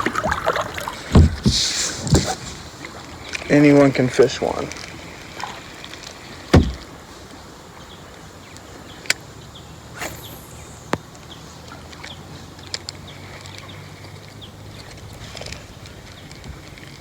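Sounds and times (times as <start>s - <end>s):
heavy low thump: 1.1s - 2.3s, 6.5s - 6.9s.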